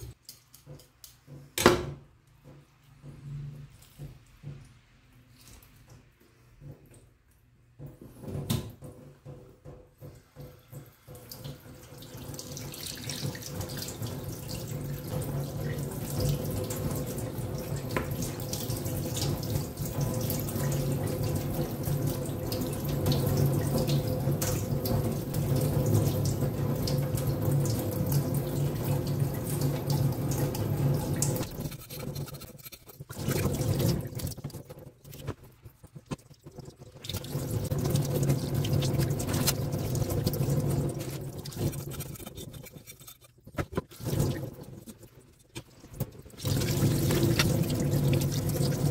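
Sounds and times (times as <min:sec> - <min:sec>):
tap water running into metal sink: 0:08.3 - 0:32.4, 0:33.0 - 0:35.4, 0:36.0 - 0:42.7, 0:43.5 - 0:45.1, 0:45.9 - 0:48.9.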